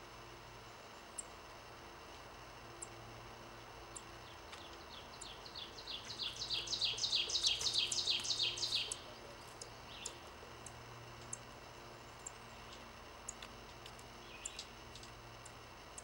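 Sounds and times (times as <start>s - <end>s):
bird high down-slurred chirps: 5.5s - 9.1s.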